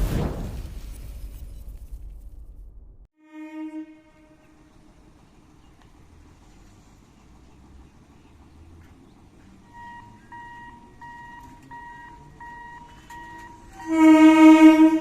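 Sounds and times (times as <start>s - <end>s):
train horn: 3.2s - 5.0s, 9.6s - 15.0s
traffic rumble: 4.3s - 15.0s
level crossing signal beeping: 9.6s - 14.4s.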